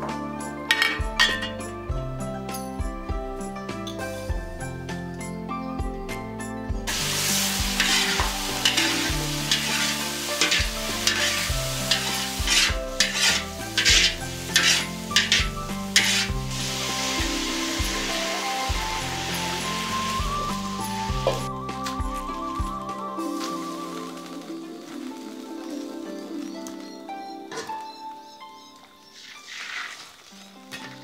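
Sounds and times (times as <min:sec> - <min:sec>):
soft background music: 0:00.0 - 0:31.0
stirring against a pan: 0:06.9 - 0:21.4
food sizzling in a pan: 0:06.9 - 0:21.5, 0:22.5 - 0:27.0, 0:29.2 - 0:31.0.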